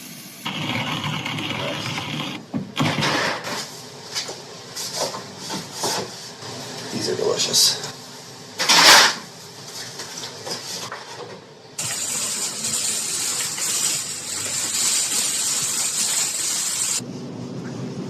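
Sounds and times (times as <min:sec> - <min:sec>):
steady hiss: 0:11.8 - 0:17.0.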